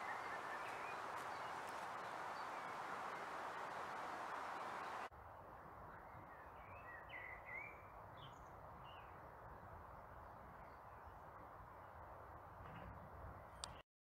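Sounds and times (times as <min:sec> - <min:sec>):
bird chirps: 0:00.0 - 0:05.1.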